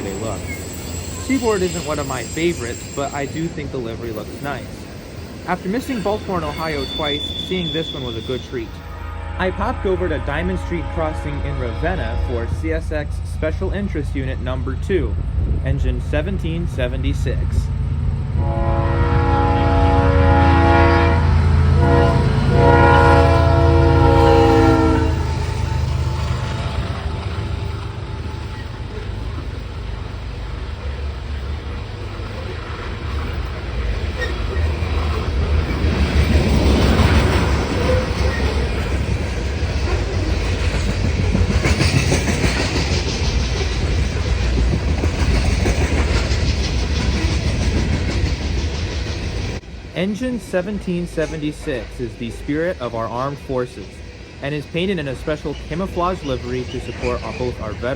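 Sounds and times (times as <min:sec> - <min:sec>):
train rumbling past: 0:00.0 - 0:57.9
locomotive air horn blasts: 0:05.9 - 0:14.2, 0:18.4 - 0:27.0
wheels clicking over rail joints: 0:25.3 - 0:49.6.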